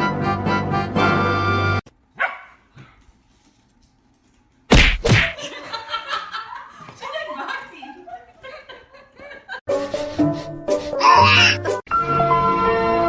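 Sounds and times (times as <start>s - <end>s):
brass music: 0.0s - 1.8s
dog barking loudly: 2.2s - 2.6s
falling yelp: 11.0s - 11.7s.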